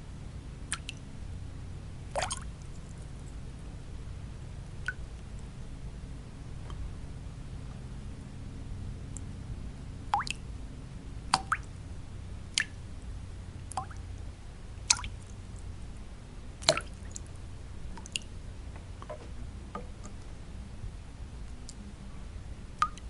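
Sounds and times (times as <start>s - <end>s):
low white noise: 0.0s - 23.0s
water drops plopping into water: 0.7s - 1.0s, 2.2s - 2.5s, 10.1s - 10.4s, 11.3s - 11.7s, 12.5s - 12.8s, 13.7s - 14.0s, 14.8s - 15.4s, 16.6s - 17.3s, 18.0s - 18.3s, 22.8s - 23.0s.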